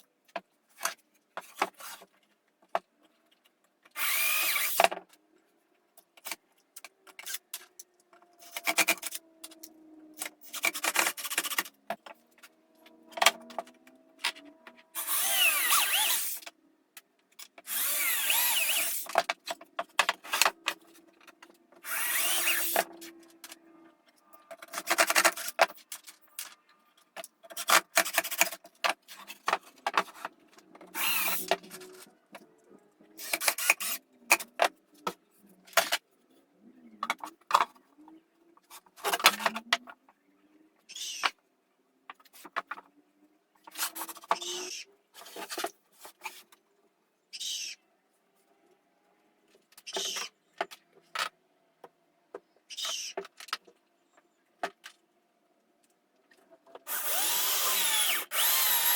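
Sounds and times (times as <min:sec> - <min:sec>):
power tools working wood: 0:04.0 - 0:04.8, 0:14.7 - 0:16.5, 0:17.7 - 0:19.1, 0:21.8 - 0:22.9, 0:30.9 - 0:31.8, 0:56.9 - 0:58.9.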